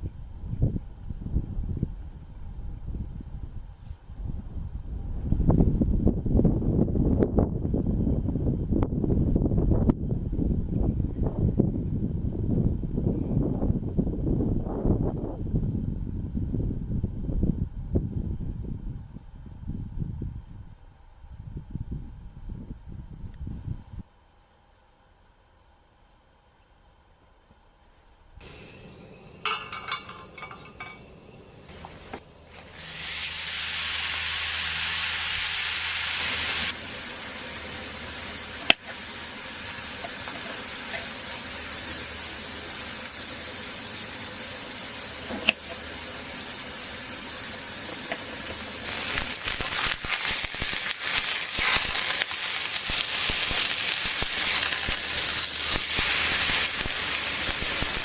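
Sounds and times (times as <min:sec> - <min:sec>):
steady hiss turning to sizzle: 0:28.4 - 0:58.0.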